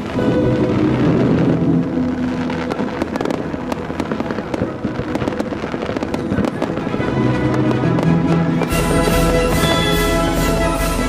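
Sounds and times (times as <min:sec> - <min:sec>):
faint music: 0:00.0 - 0:11.0
fireworks cracking and banging: 0:00.0 - 0:11.0.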